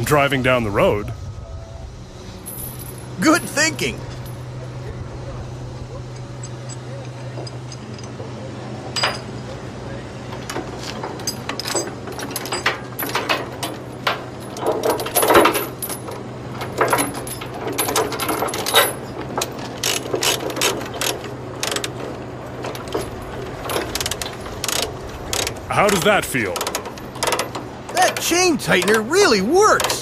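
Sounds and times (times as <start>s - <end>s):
steady low hum: 0.0s - 30.0s
steel chains clanking: 2.4s - 4.7s, 6.1s - 8.3s, 8.9s - 9.4s, 10.3s - 30.0s
ratchet chain binder clicking: 10.5s - 29.1s.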